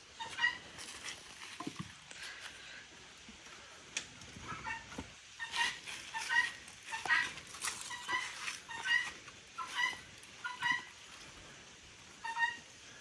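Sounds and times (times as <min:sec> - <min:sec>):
farmyard fowl calling: 0:00.1 - 0:01.2, 0:04.5 - 0:11.4, 0:12.0 - 0:13.0.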